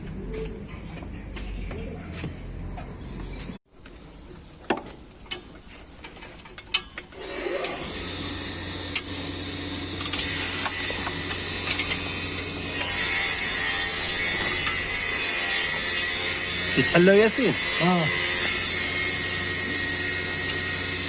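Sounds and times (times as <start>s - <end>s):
ratchet spanner clicking: 8.9s - 16.0s.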